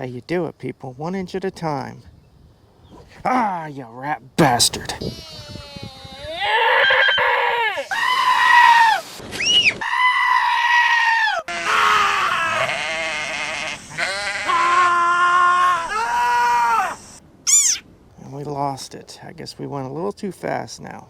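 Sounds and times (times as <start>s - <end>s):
goat-like screaming cries: 5.0s - 17.8s.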